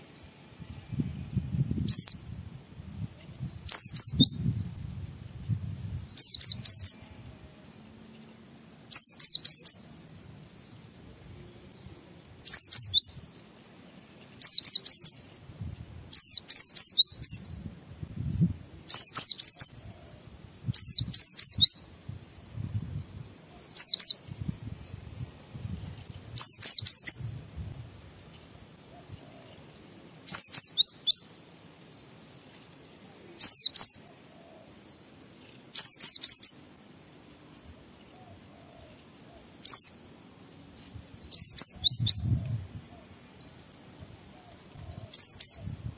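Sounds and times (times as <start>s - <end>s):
bird twittering: 30.3s - 31.3s, 35.8s - 36.6s, 41.2s - 42.4s, 44.5s - 45.8s.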